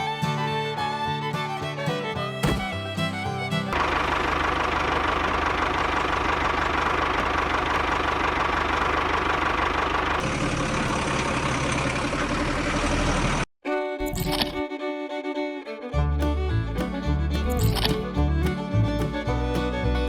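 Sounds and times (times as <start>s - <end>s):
engine idling: 0.0s - 14.6s, 15.9s - 20.0s.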